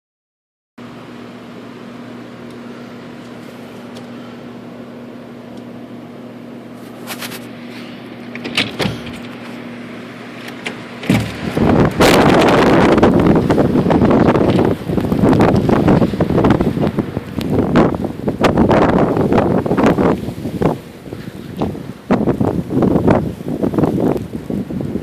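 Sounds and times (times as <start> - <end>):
steady low hum: 0.8 - 25.0
wind buffeting microphone: 10.5 - 25.0.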